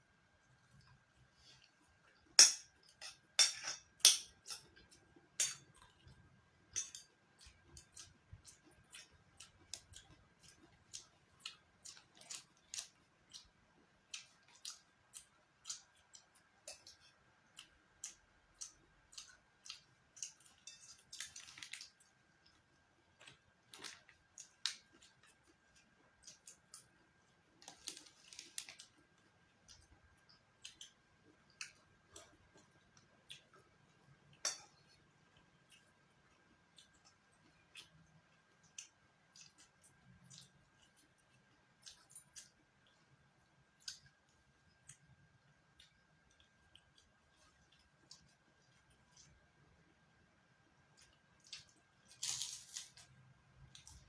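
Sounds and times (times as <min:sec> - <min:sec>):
utensils clinking against dishes: 0:02.4 - 0:04.7.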